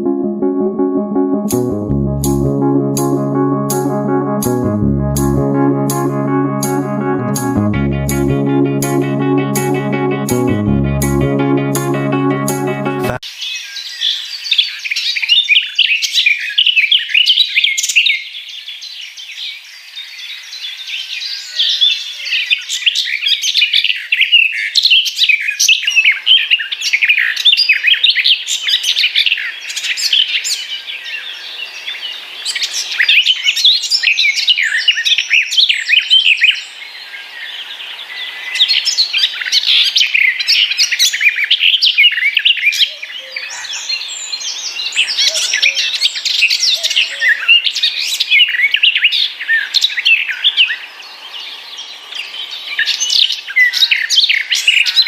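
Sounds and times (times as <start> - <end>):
small birds chirping and singing: 29.5 - 55.0.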